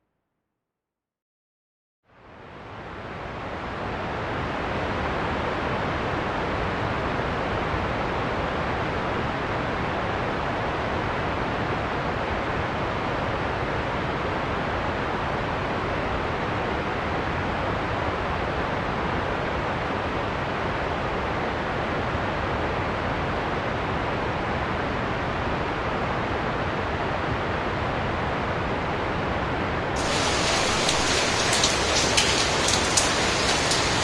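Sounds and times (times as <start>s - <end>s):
heavy rain and wind hiss: 30.0s - 34.0s.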